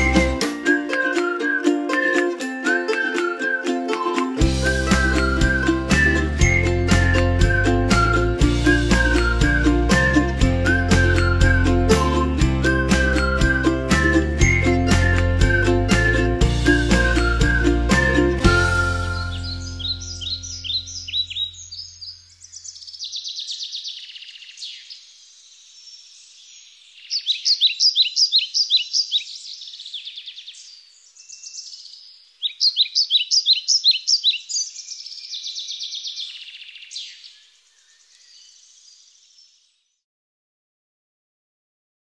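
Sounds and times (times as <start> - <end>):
songbirds singing: 18.8 - 40.0.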